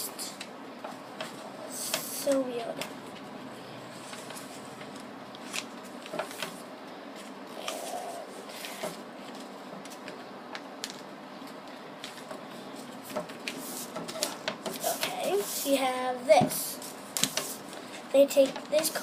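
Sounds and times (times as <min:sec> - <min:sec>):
steady background hiss: 0:00.0 - 0:19.0
paper crinkling and rustling: 0:03.9 - 0:15.6.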